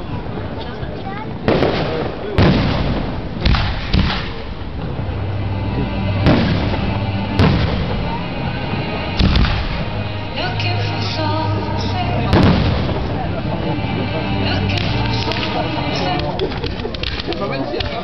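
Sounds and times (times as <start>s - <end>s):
firework shells booming: 1.5s - 5.0s
music over loudspeakers: 4.8s - 16.6s.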